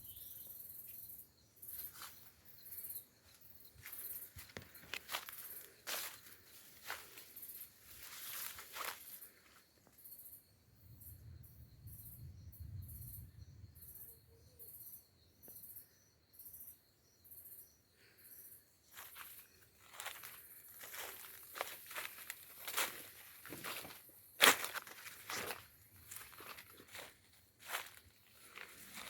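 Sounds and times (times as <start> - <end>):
insect chirping high-pitched: 0.0 - 29.0
footsteps crunching on forest ground: 3.3 - 9.6, 18.9 - 29.0.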